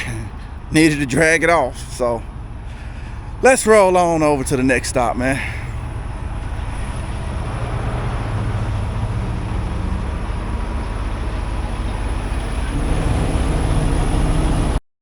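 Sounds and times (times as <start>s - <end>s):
diesel truck engine running: 0.0s - 14.8s.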